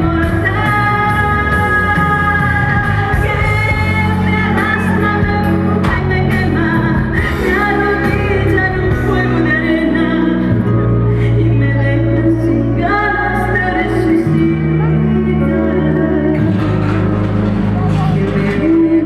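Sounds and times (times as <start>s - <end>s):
woman singing: 0.0s - 17.2s, 18.0s - 19.0s
instrumental accompaniment: 0.0s - 19.0s
steady bass line: 0.0s - 19.0s.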